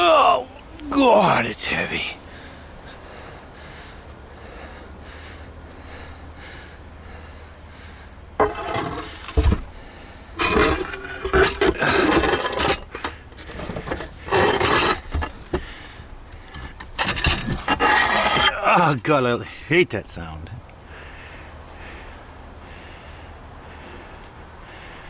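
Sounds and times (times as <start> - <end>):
stone slabs scraping together: 8.4 - 9.7, 10.4 - 15.7, 16.5 - 18.6.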